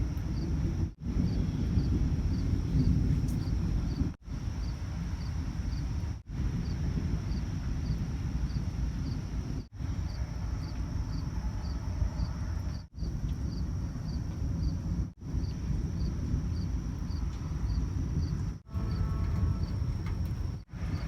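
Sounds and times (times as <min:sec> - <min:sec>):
crickets chirping: 0:00.0 - 0:21.0
high insect trill: 0:10.1 - 0:21.0.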